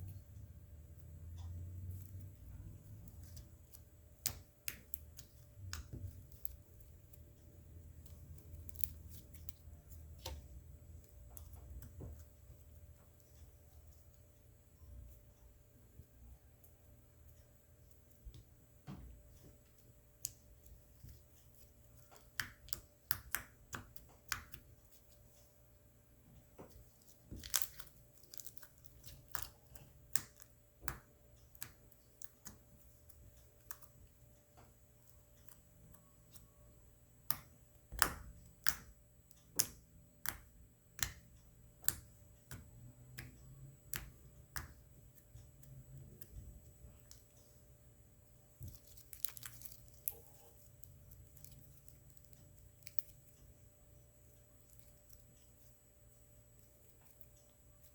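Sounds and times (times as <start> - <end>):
slime squished by hand: 26.8 - 33.9, 48.6 - 53.1.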